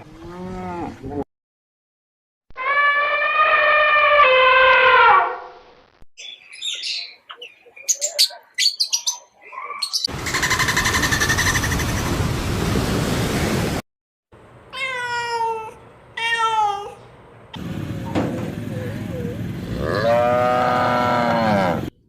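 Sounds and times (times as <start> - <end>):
cat meowing: 14.8 - 17.0.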